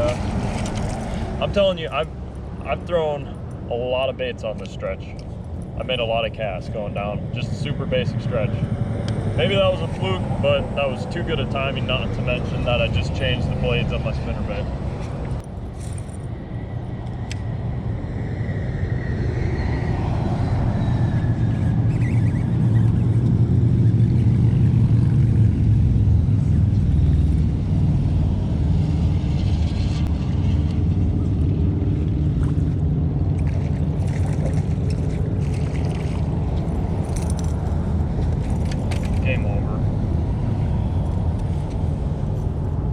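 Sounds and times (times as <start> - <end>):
outboard motor running: 31.2 - 39.6.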